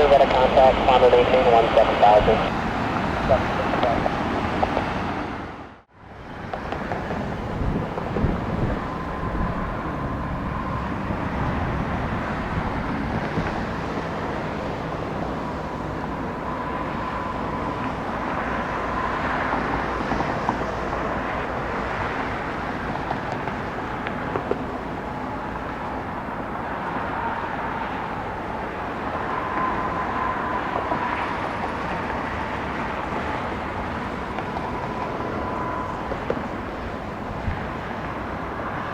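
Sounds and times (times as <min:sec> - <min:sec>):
faint high whine: 0:00.0 - 0:04.3, 0:14.6 - 0:21.5, 0:25.0 - 0:38.9
jet engines rumbling: 0:00.0 - 0:38.9.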